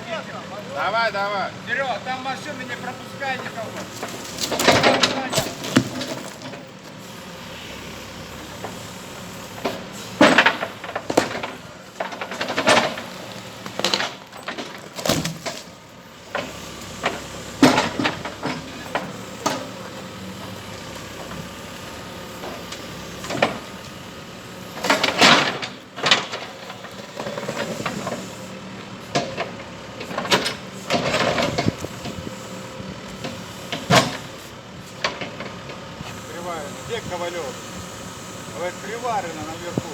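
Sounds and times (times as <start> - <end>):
diesel engine running: 0.0 - 39.9
loud clanks and bangs: 9.6 - 13.2.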